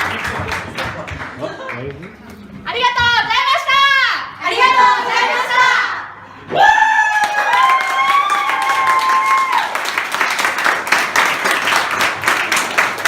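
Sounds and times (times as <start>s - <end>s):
audience applause: 0.0s - 2.1s, 7.0s - 13.0s.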